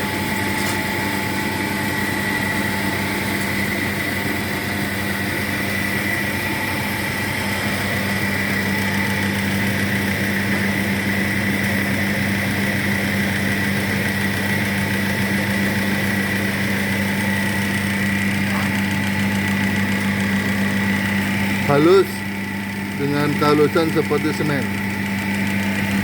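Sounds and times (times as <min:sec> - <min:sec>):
hammer mill humming and whining: 0:00.0 - 0:26.0.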